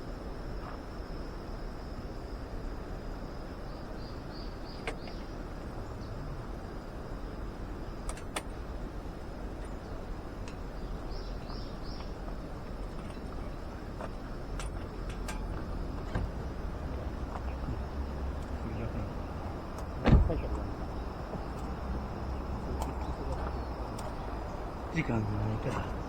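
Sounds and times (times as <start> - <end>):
steady background hiss: 0.0 - 26.0
bird calling: 4.0 - 6.4, 9.5 - 26.0.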